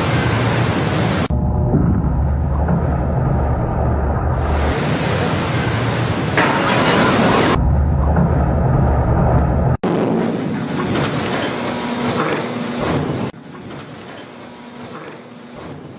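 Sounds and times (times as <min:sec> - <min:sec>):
heavy rumble: 0:00.0 - 0:13.9
water rushing and splashing: 0:04.4 - 0:07.6.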